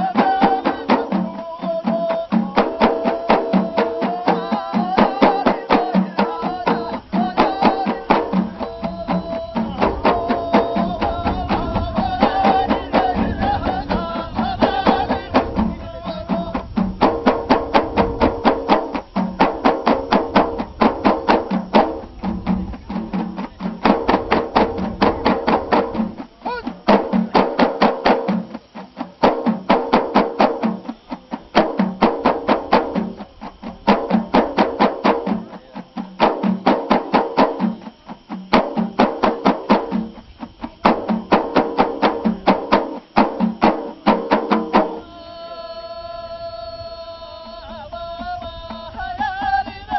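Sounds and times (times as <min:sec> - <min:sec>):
frame drums beating: 0:00.0 - 0:45.2
voices chanting together: 0:00.0 - 0:49.9.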